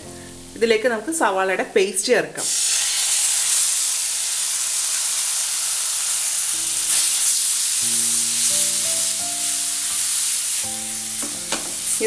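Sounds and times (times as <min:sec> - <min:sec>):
onion paste sizzling in oil: 0:02.4 - 0:12.0.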